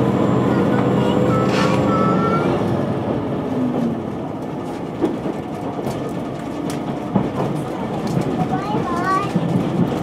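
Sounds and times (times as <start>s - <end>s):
track clacks: 0.0s - 10.0s
train wheels rumbling on rail: 0.0s - 10.0s.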